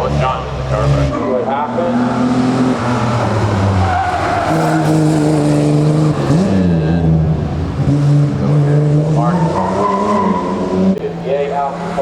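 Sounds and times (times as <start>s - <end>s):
tyres squealing: 0.0s - 5.5s, 9.1s - 12.0s
racing car engine: 0.0s - 12.0s.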